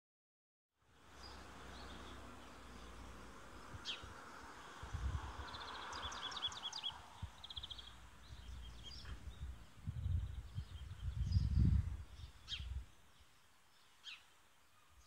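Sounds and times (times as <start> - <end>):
small birds chirping: 0.9 - 15.0
low rumbles on microphone: 3.6 - 12.9
background hiss: 11.8 - 15.0.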